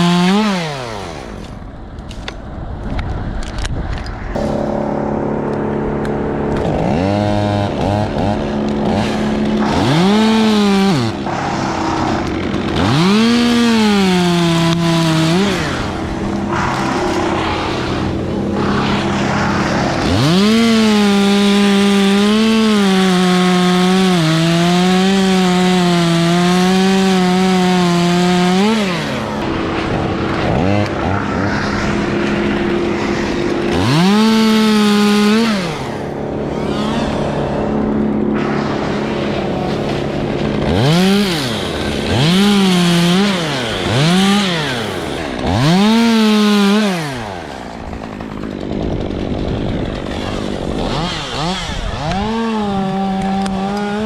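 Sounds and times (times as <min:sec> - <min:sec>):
chainsaw revving: 0:00.0 - 0:01.6, 0:04.4 - 0:54.0.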